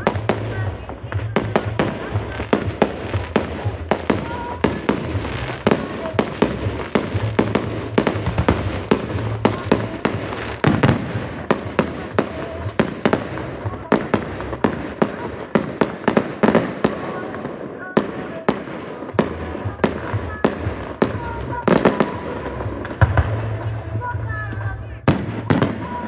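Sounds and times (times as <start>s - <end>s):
low rumble: 0.0s - 14.6s
fireworks bangs and cracks: 0.0s - 26.0s.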